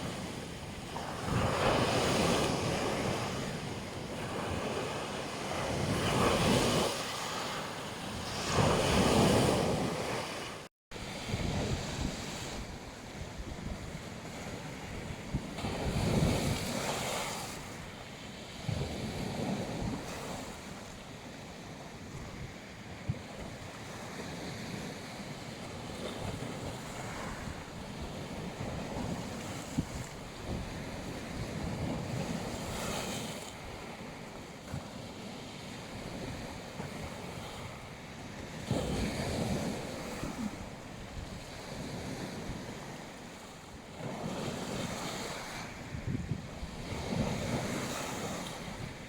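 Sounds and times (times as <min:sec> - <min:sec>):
waves breaking on a beach: 0:00.0 - 0:49.0
wind buffeting microphone: 0:11.0 - 0:21.4, 0:22.0 - 0:49.0.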